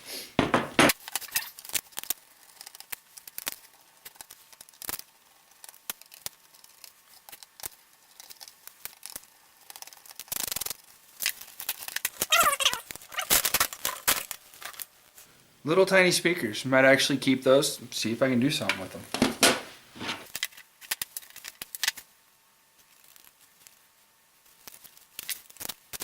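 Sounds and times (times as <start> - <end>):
parts scraping: 9.0 - 14.9, 18.6 - 21.5.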